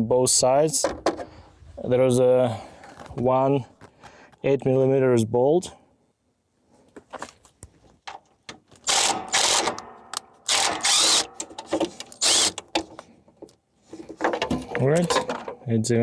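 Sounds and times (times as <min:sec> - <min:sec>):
power driver spinning out bolt: 0:10.5 - 0:12.8.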